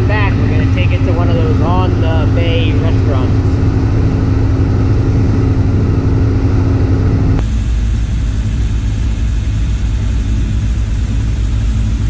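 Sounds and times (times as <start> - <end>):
boat engines rumbling: 0.0 - 7.4.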